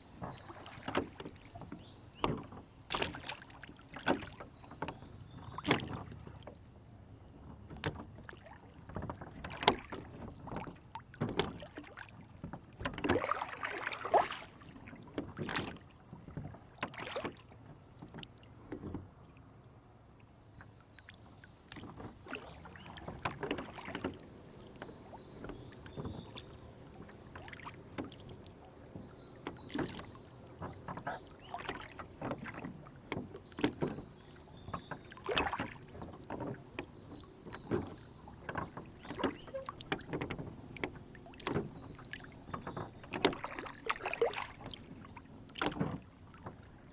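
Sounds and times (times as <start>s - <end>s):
oars dipping and splashing: 0.0s - 46.9s
water sloshing against hull: 0.0s - 46.9s.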